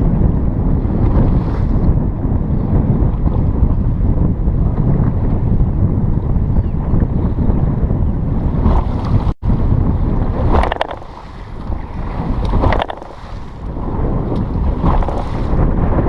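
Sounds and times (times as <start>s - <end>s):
boat running on choppy water: 0.0s - 16.0s
wind buffeting microphone: 0.0s - 16.0s
water splashing: 10.0s - 15.7s.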